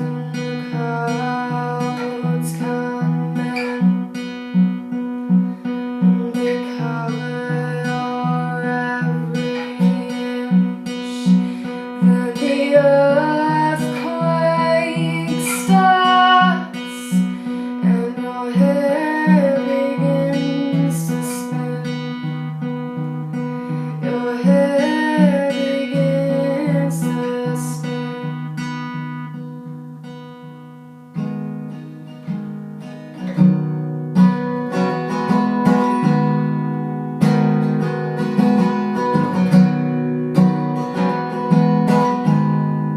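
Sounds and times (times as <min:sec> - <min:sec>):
person singing: 0:00.0 - 0:04.4, 0:05.9 - 0:22.5, 0:23.7 - 0:28.2
acoustic guitar picking: 0:00.0 - 0:42.9.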